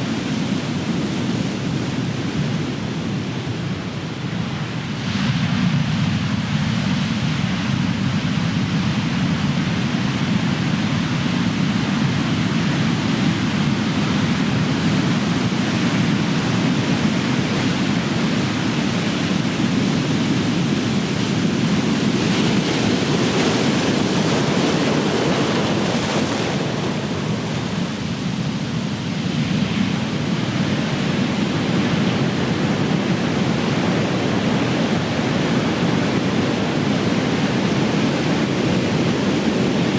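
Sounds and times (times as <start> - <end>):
ocean waves crashing: 13.4 - 39.9.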